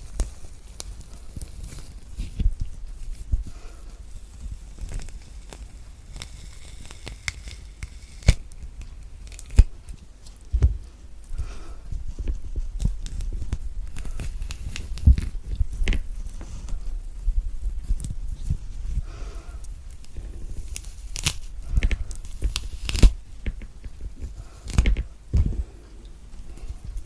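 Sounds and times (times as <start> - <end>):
orange peel tearing: 4.8 - 9.7, 20.0 - 25.1.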